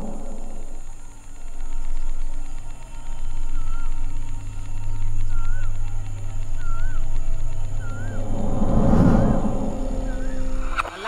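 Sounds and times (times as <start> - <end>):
low steady drone: 0.0 - 11.0
bird whistling: 3.0 - 8.3.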